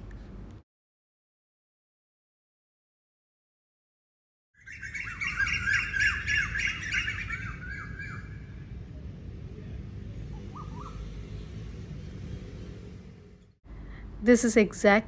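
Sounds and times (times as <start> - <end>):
birds chirping: 4.6 - 13.6
low background rumble: 5.8 - 15.0.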